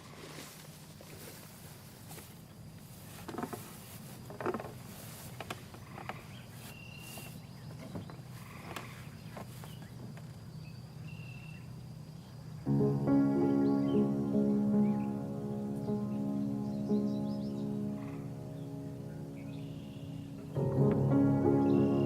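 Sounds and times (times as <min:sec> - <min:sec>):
rustles or steps: 0:00.0 - 0:10.4.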